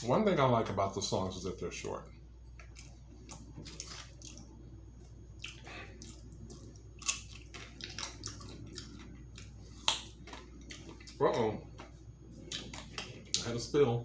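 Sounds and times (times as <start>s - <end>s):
chewing and lip smacks: 2.5s - 11.2s, 11.8s - 13.5s.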